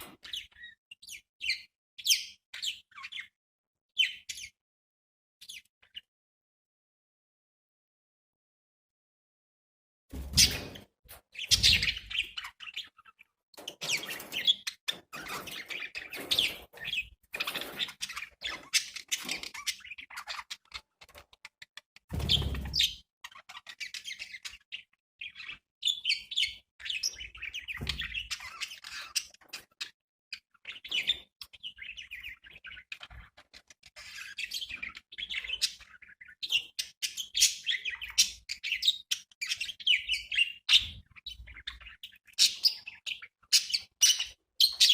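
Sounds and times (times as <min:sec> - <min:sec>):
budgerigars chirping: 0:11.4 - 0:21.0, 0:22.2 - 0:29.9, 0:30.5 - 0:44.9.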